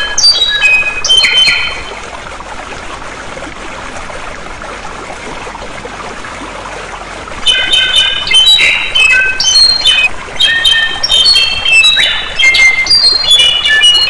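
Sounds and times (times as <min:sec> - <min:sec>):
songbird singing whistled notes: 0:00.0 - 0:01.9, 0:07.4 - 0:14.0
flowing water rushing: 0:00.0 - 0:14.0.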